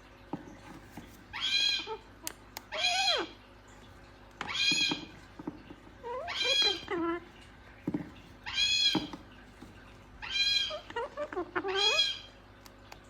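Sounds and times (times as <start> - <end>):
cockatoo calling: 6.0 - 7.3, 8.4 - 9.2, 10.2 - 12.3.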